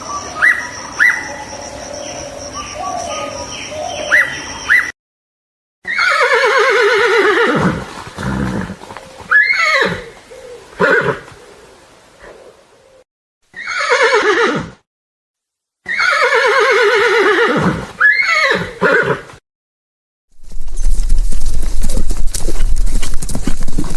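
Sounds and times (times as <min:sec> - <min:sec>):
horse whinnying: 0:05.8 - 0:10.2, 0:10.8 - 0:11.3, 0:13.5 - 0:14.8, 0:15.8 - 0:19.3.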